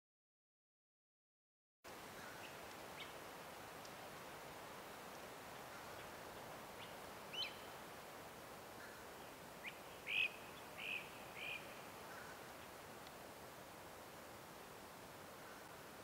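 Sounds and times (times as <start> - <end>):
faint outdoor hiss: 1.9 - 16.0
bird whistling calls: 7.3 - 7.7, 9.6 - 11.7.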